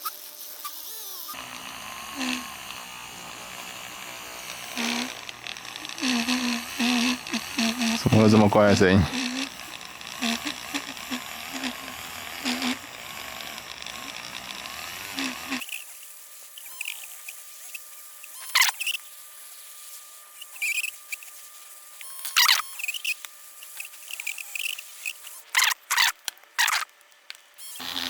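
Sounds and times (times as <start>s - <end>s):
polishing tool squeaking on plastic: 0.0s - 26.9s, 27.6s - 28.0s
faint steady whine: 1.4s - 15.6s.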